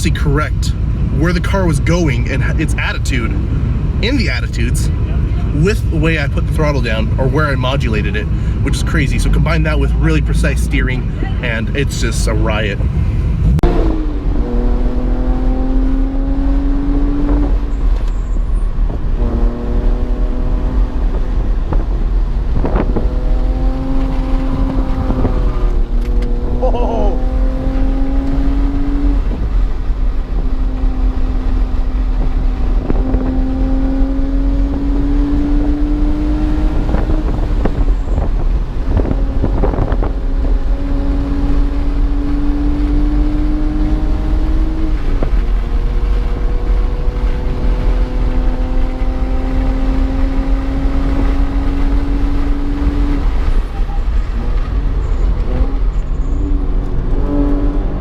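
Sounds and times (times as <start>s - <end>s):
car engine revving: 0.0s - 58.0s
road and wind noise: 0.0s - 58.0s.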